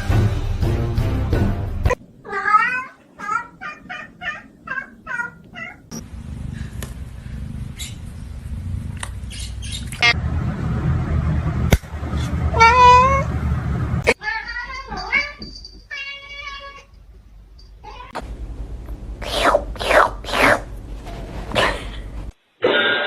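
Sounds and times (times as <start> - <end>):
cat meowing: 2.2 - 5.9, 12.5 - 13.3, 14.1 - 16.9, 17.8 - 18.2
low rumbling noise: 2.9 - 14.2, 18.2 - 22.4.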